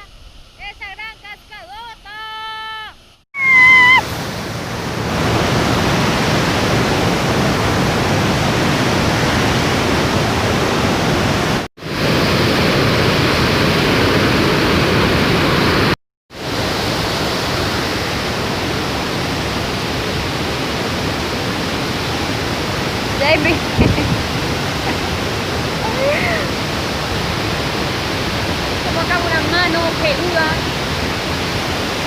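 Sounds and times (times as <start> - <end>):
waterfall rushing: 3.4 - 32.0
wind buffeting microphone: 17.6 - 32.0.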